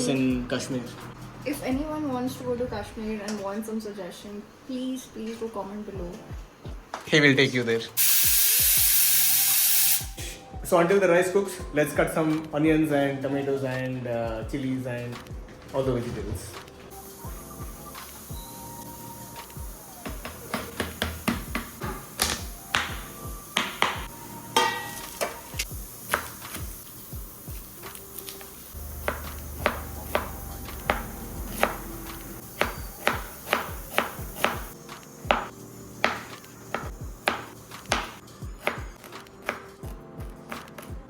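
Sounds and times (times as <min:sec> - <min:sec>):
background music: 0:00.0 - 0:41.0
knife chopping on cutting board: 0:20.1 - 0:25.3, 0:29.0 - 0:32.0, 0:32.6 - 0:34.7, 0:35.3 - 0:39.8.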